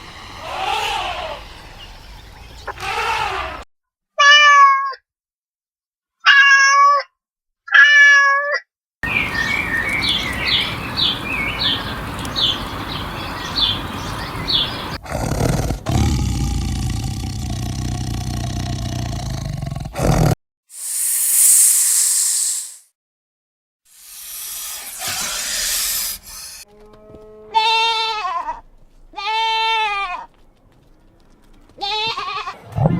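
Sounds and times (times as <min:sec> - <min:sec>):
steady low hum: 0:00.0 - 0:02.7
short high chirps: 0:20.8 - 0:22.8.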